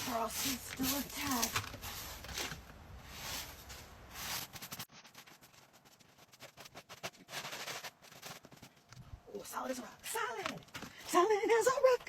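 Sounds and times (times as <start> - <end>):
crunching in frozen snow: 0.0 - 8.8.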